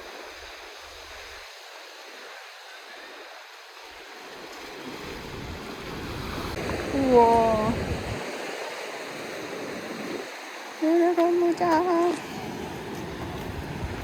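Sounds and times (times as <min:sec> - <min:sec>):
sea surf washing: 0:00.0 - 0:14.0
wind on microphone: 0:04.6 - 0:14.0.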